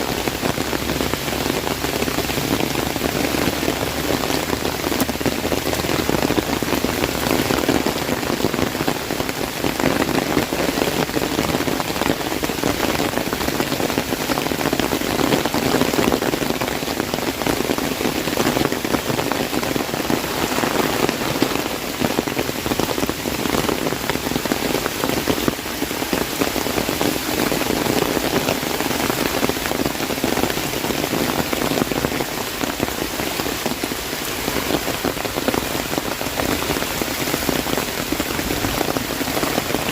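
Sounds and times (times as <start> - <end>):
hiss of downpour: 0.0 - 39.9
rain pattering on an umbrella: 0.0 - 39.9.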